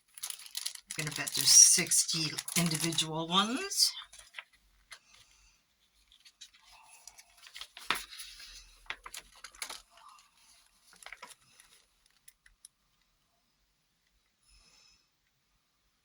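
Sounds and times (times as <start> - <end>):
paper sheets rustling: 0.1 - 5.1, 6.0 - 12.2.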